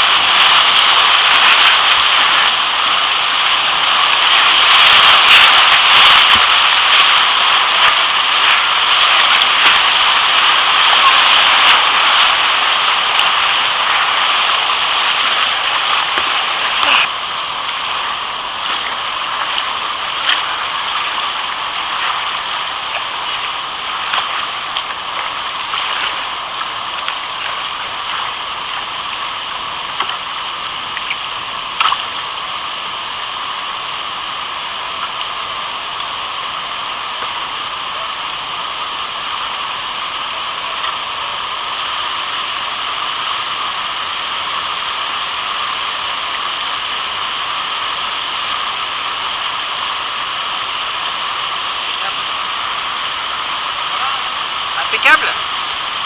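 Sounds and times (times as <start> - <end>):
sharp water splashes: 0.0 - 32.4, 51.7 - 56.0
whitewater rushing: 0.0 - 56.0.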